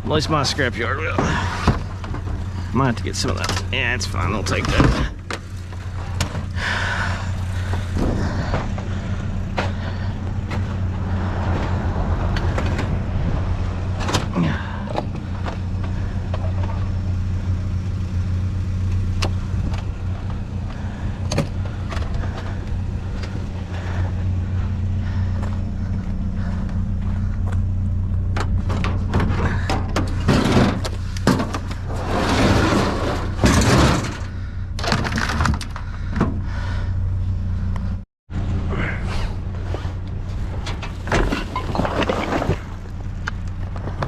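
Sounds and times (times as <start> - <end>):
vehicle engine idling: 0.0 - 44.0
scrap metal clattering: 28.5 - 35.4.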